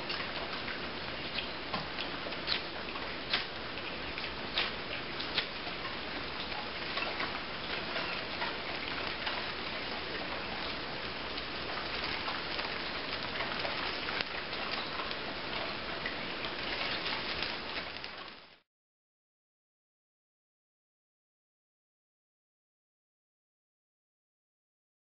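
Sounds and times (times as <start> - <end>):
heavy rain on hard surface: 0.0 - 18.6.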